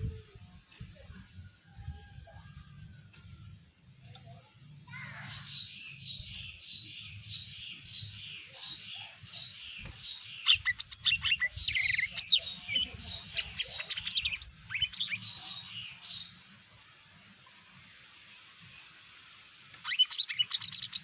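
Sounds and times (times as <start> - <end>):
bird chirping and whistling: 19.8 - 21.0.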